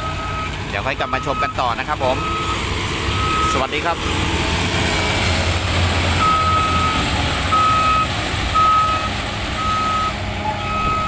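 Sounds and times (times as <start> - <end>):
reversing alarm beeping: 0.0 - 2.6, 3.2 - 3.9, 6.2 - 11.0
engine rumble: 0.0 - 11.0.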